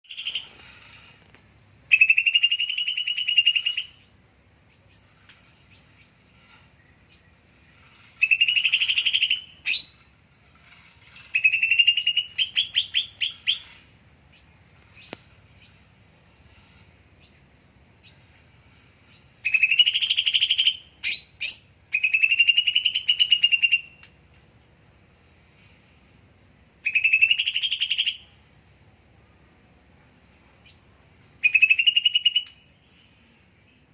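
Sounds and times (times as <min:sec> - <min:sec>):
bird buzzy trills: 0:00.0 - 0:17.4, 0:18.0 - 0:24.1, 0:30.6 - 0:33.9
sharp bird chips: 0:04.8 - 0:15.8.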